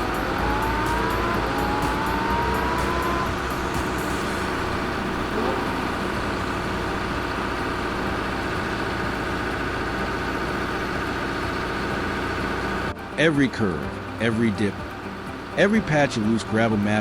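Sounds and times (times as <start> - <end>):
rising whine: 0.0 - 9.8
heavy vehicle engine running: 0.0 - 17.0.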